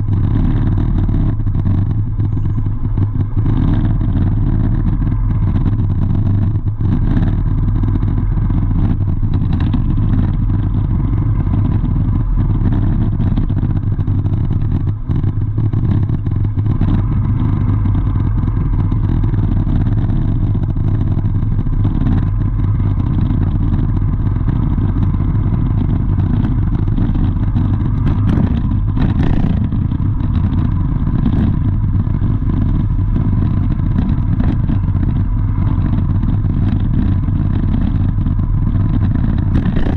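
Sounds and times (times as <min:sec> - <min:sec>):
vehicle engine rumbling: 0:00.0 - 0:39.9.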